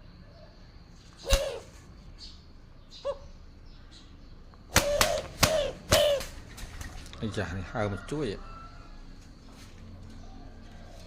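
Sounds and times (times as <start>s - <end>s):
dove wing slaps: 1.2s - 1.7s, 4.7s - 7.1s
dove low hoot: 1.2s - 1.8s, 4.7s - 6.4s.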